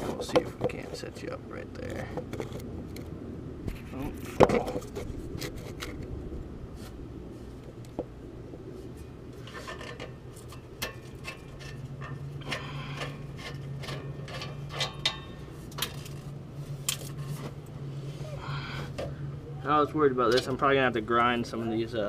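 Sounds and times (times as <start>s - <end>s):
metal clicks knocks and scraping: 0.0s - 1.2s, 1.9s - 3.1s, 8.9s - 17.6s.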